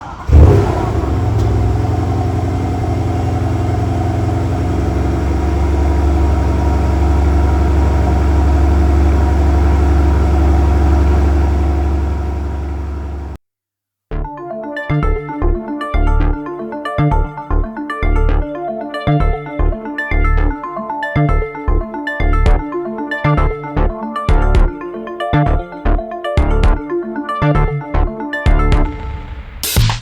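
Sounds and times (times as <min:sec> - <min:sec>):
car engine starting and idling: 0:00.0 - 0:13.4.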